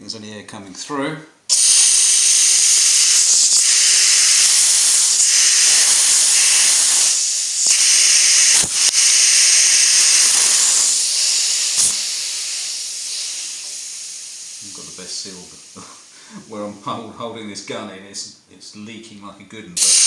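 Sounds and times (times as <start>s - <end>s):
compressed air hissing: 1.5s - 16.8s, 19.8s - 20.0s.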